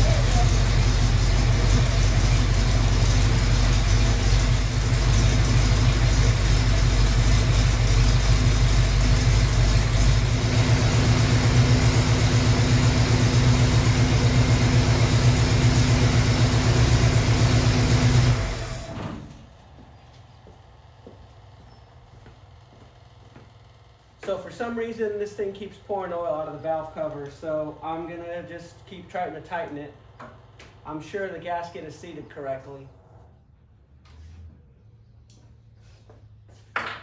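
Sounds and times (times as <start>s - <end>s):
car engine running: 0.0s - 18.8s.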